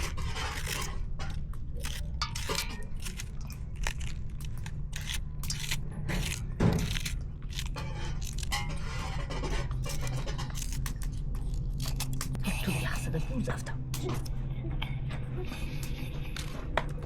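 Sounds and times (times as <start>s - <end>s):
scraping and clinking of utensils: 0.0s - 12.4s
steady low rumble: 0.0s - 17.0s.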